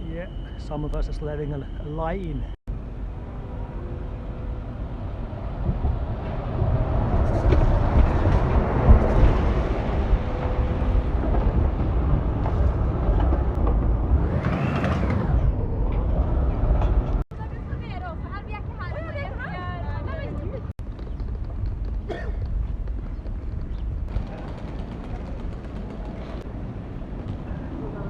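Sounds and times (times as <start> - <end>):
vehicle passing with low rumble: 2.7 - 17.2.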